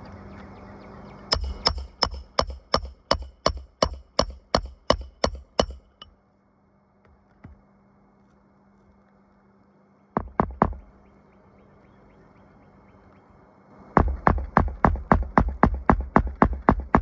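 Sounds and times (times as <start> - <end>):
hammer striking a roof: 1.3 - 6.1, 10.2 - 10.9, 14.0 - 17.0.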